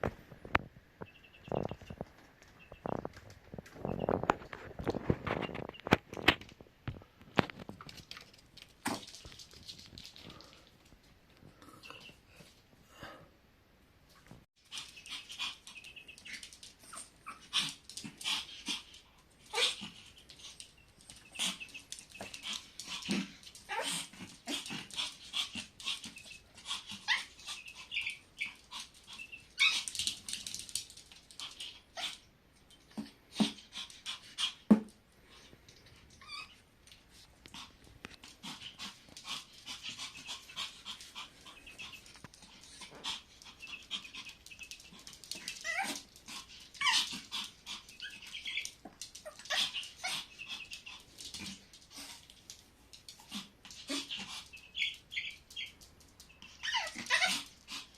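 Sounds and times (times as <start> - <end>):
puppy whimpering and yipping: 25.9 - 30.1, 43.6 - 46.0, 46.8 - 51.0, 56.4 - 57.5.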